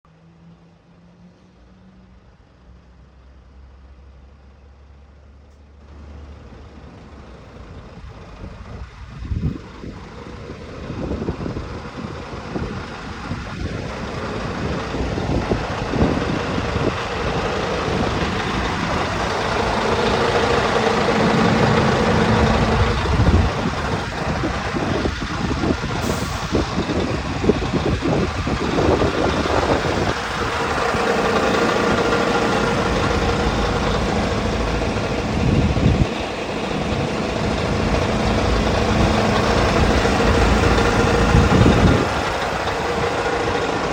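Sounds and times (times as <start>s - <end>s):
truck diesel engine running: 4.7s - 43.9s.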